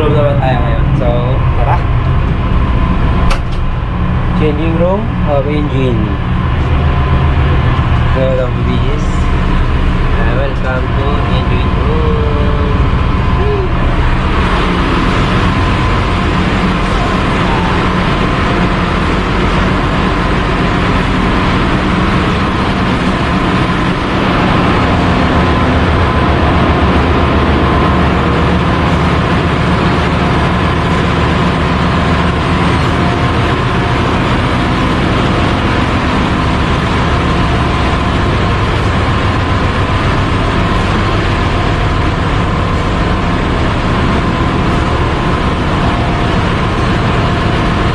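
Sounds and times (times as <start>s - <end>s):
engine room machinery running: 0.0s - 47.9s.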